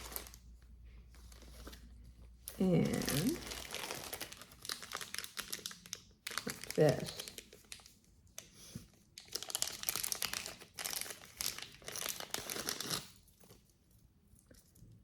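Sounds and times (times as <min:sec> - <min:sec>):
packaging crinkling and rustling: 0:00.0 - 0:13.7.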